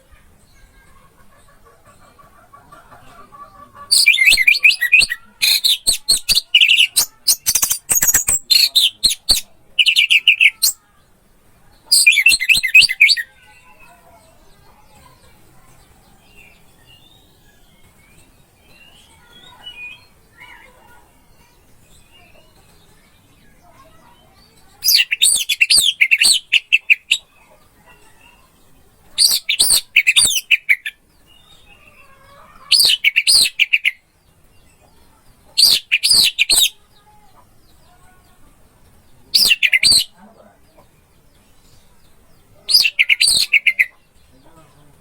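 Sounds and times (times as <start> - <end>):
thrush singing twittering notes: 3.9 - 10.8.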